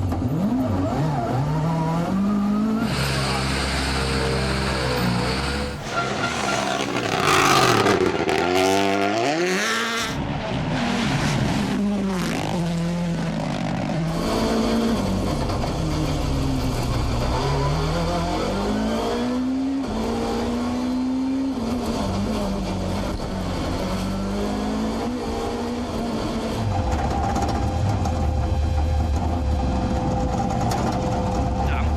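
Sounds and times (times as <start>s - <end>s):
rally car engines revving: 5.4s - 10.3s
tyres rushing: 5.5s - 10.2s.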